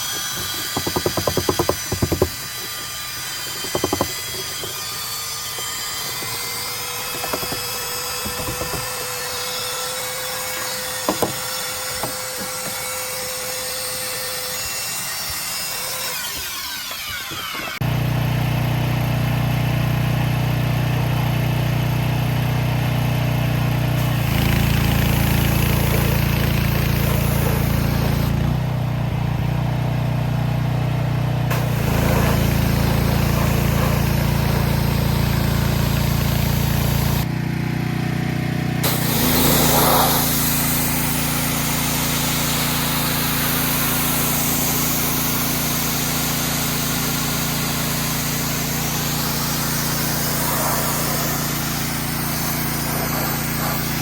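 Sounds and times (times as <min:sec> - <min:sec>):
engine running: 0:17.0 - 0:54.0
hiss: 0:31.5 - 0:37.2, 0:38.8 - 0:54.0.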